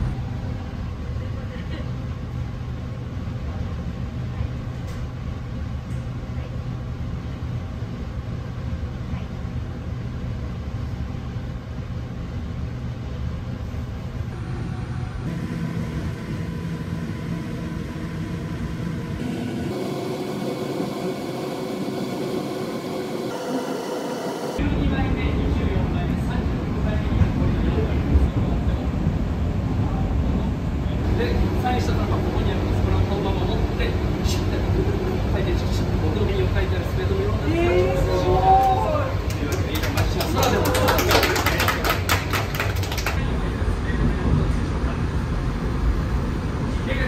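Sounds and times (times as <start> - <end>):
train motors humming: 0.0 - 47.0
train running gear rumbling: 24.6 - 40.9, 41.5 - 47.0.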